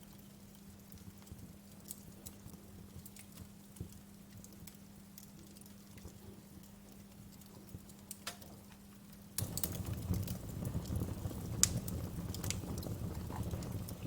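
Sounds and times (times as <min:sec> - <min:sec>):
wood fire crackling: 0:00.0 - 0:14.0
low rushing of flames: 0:09.4 - 0:14.0.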